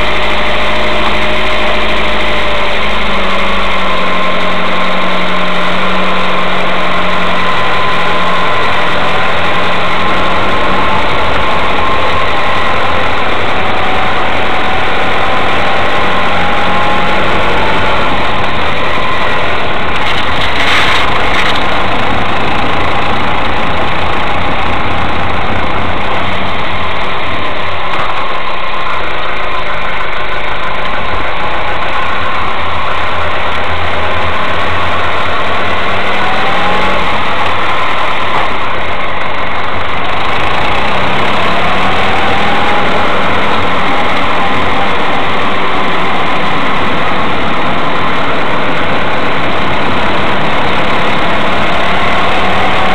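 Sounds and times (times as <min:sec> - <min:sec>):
car engine running at low revs: 0:00.0 - 0:52.9.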